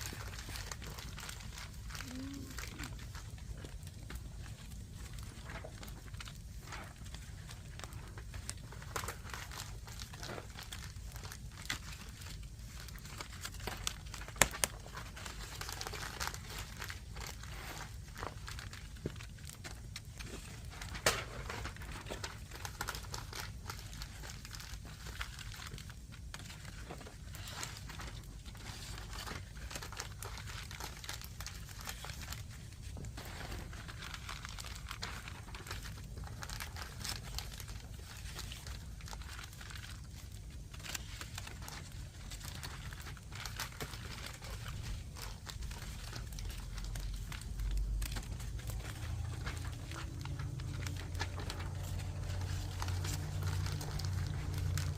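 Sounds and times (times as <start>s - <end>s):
fire crackling and popping: 0.0s - 54.9s
low rumble: 46.8s - 54.9s.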